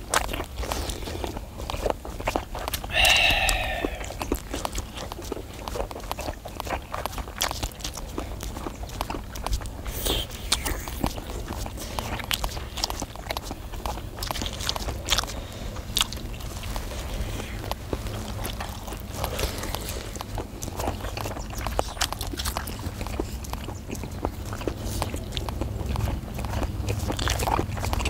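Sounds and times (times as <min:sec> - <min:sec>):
people chewing and biting: 0:00.0 - 0:28.0
wet mouth clicks: 0:00.0 - 0:28.0
steady low rumble: 0:02.9 - 0:04.6.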